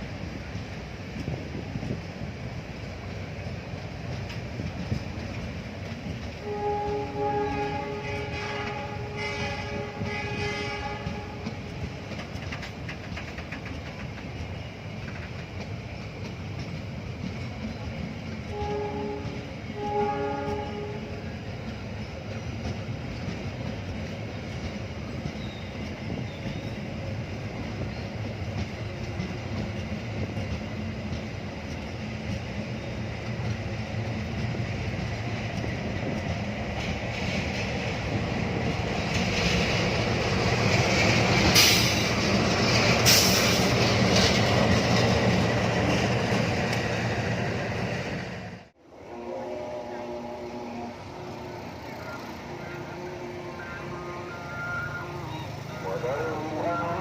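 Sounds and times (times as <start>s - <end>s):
train rumbling on tracks: 0.0s - 57.0s
train horn blasts: 6.4s - 11.8s, 18.5s - 21.5s, 48.8s - 57.0s.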